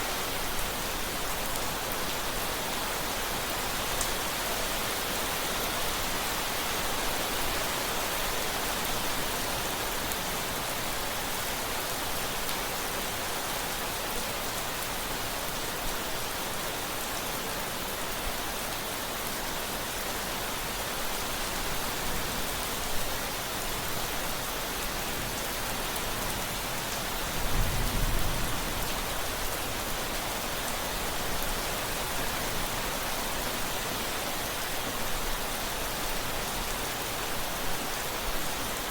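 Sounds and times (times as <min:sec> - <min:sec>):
steady rain: 0:00.0 - 0:38.9
low rumble of thunder: 0:27.3 - 0:29.4.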